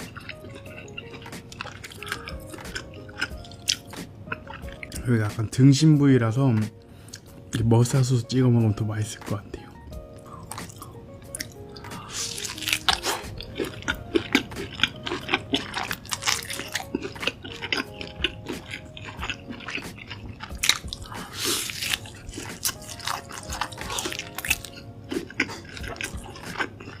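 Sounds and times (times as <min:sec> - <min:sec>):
chewing and biting meat: 0:00.0 - 0:05.0, 0:10.2 - 0:27.0
faint background music: 0:00.0 - 0:27.0.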